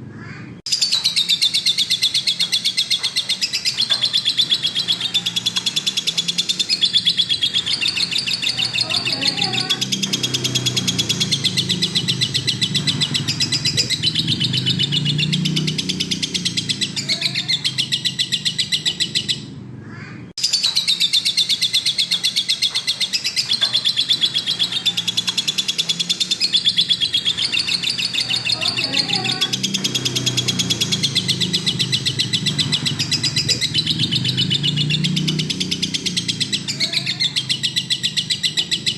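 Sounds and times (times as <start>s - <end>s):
bird chattering high chirps: 0.7s - 38.9s.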